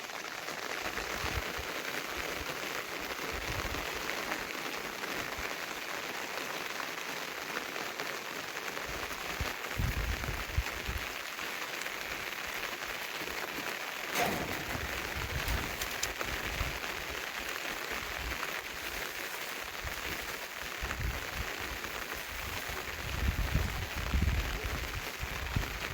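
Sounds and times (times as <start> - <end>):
rain falling: 0.0 - 25.9
loud knock: 14.2 - 16.2
low thuds: 14.2 - 16.8.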